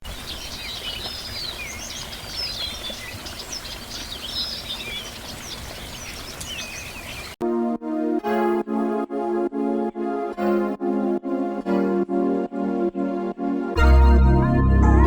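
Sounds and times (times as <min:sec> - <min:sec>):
small birds chirping: 0:00.0 - 0:07.4.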